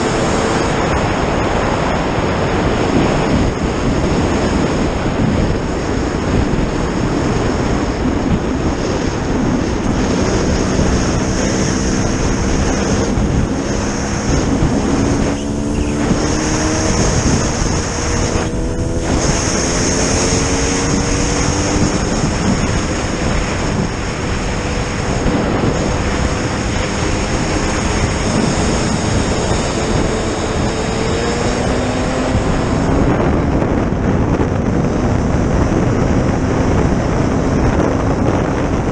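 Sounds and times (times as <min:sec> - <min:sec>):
engine running at speed: 0:00.0 - 0:38.9
wind rush on microphone: 0:00.0 - 0:38.9.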